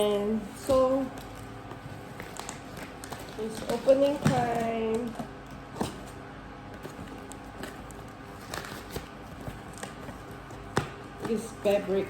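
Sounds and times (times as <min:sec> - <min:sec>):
light clicks and taps from parcel: 0:00.6 - 0:06.1.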